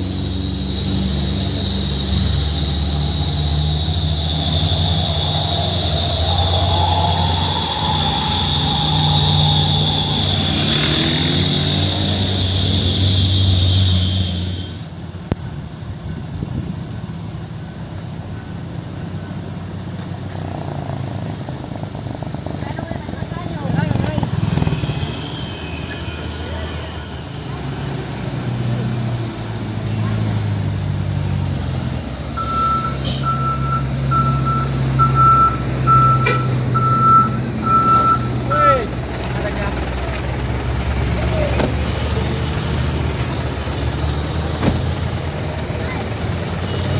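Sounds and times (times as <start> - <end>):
high whine: 0.0 - 14.9
truck reversing alarm beeping: 0.0 - 14.9, 32.2 - 40.0
road noise: 0.0 - 46.9
truck engine drone: 0.0 - 46.9.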